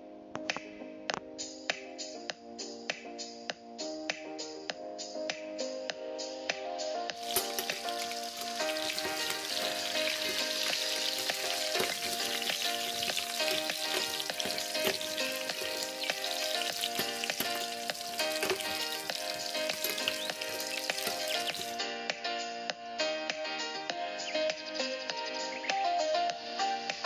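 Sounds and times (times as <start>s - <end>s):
background music: 0.0s - 27.0s
chicken sizzling in hot oil: 7.2s - 21.8s
metal spoon turning food in pan: 7.2s - 21.8s.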